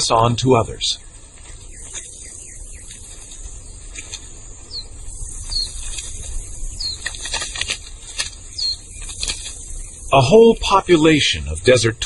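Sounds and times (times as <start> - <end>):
small bird chirping: 1.0 - 10.4
faint clicks and scrapes: 5.5 - 9.8.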